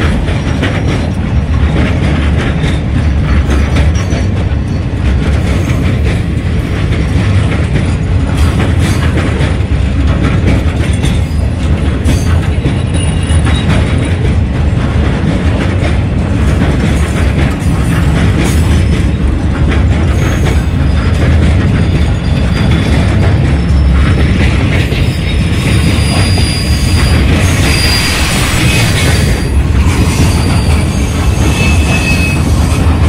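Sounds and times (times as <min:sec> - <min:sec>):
train wheels rumbling on rail: 0:00.0 - 0:33.0
wheels clicking over rail joints: 0:00.0 - 0:33.0
high wheel squeal: 0:25.0 - 0:32.8.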